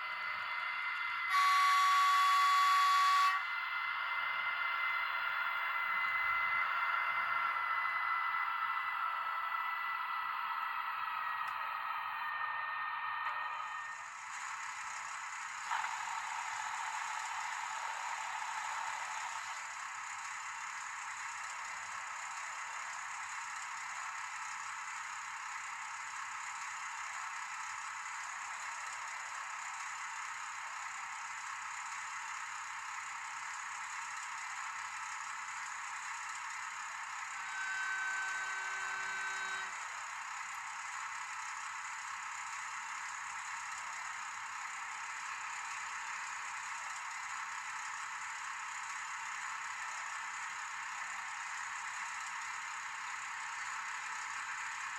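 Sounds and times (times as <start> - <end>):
steady tone: 0.0 - 14.8
model train whirring rattle: 0.0 - 54.9.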